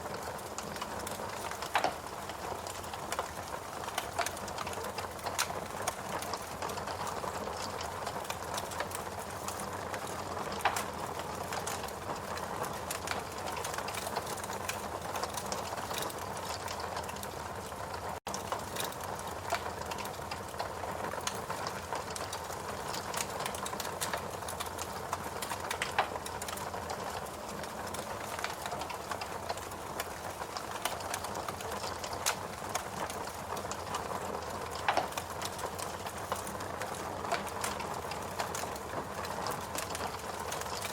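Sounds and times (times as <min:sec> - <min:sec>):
fireplace crackling and popping: 0:00.0 - 0:40.9.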